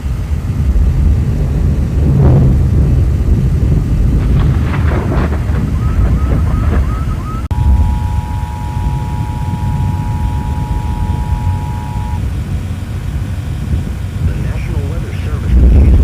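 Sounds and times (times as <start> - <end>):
loud low rumble: 0.0 - 16.0
scattered knocks: 4.2 - 7.6
two-tone alert signal: 5.7 - 12.2.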